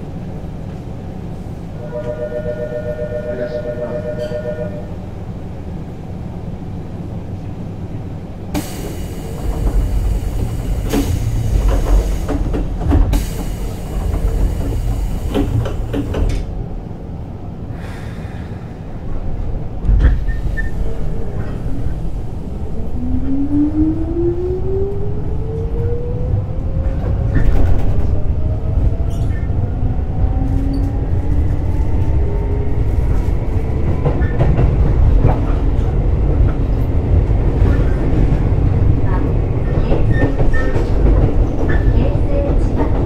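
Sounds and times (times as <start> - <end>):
train running rumble: 0.0 - 43.0
pair of steady tones: 1.8 - 4.9.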